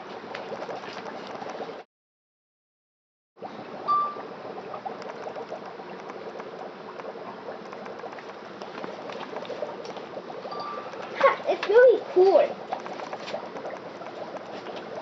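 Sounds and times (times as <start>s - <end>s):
dry ice bubbling in water: 0.0s - 1.8s, 3.4s - 15.0s.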